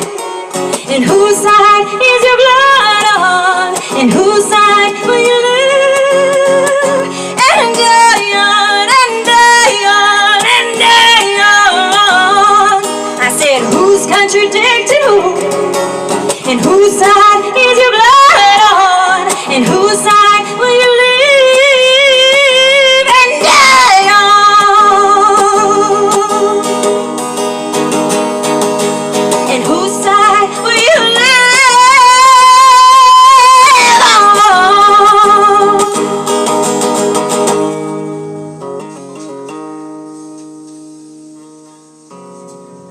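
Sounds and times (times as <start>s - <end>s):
woman singing: 0.0s - 26.9s, 29.3s - 36.3s
guitar accompaniment: 0.0s - 42.9s.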